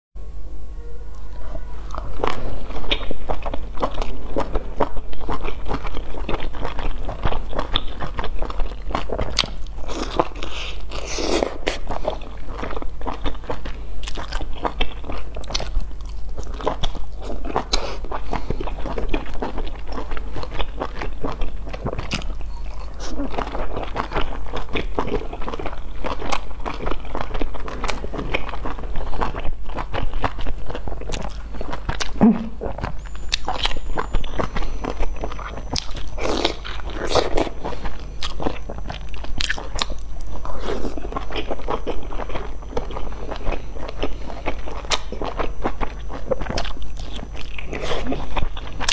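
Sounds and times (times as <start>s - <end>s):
faint low hum: 0.2s - 48.9s
chewing and biting: 1.9s - 48.9s.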